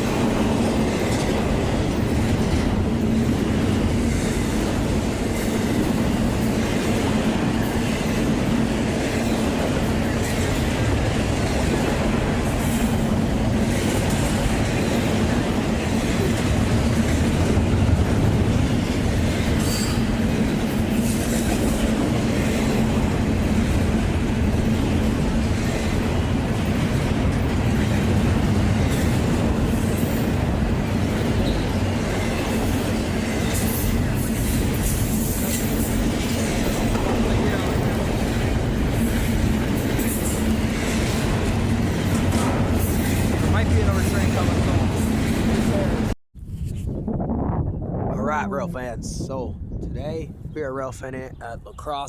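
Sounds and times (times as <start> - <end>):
train rolling on rails: 0.0 - 46.2.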